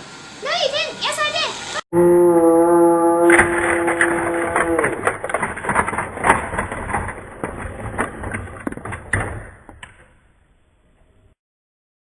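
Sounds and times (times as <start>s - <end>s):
background noise: 0.0s - 11.4s
sharp clicks and knocks: 3.3s - 10.2s.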